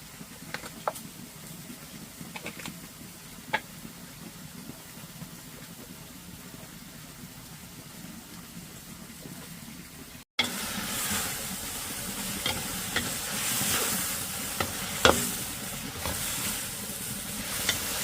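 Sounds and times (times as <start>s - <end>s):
food sizzling in a pan: 10.4s - 18.0s
utensil knocking against pan: 14.6s - 15.4s.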